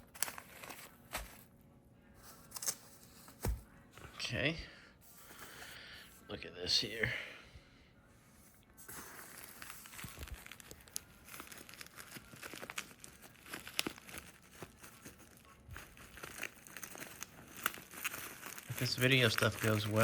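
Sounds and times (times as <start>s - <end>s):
packaging crinkling and rustling: 0.0s - 1.5s, 8.8s - 20.0s.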